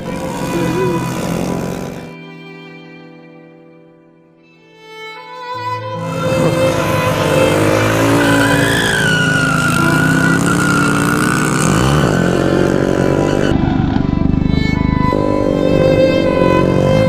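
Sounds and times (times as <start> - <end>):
vehicle engine running hard: 0.0 - 2.2, 6.0 - 17.0.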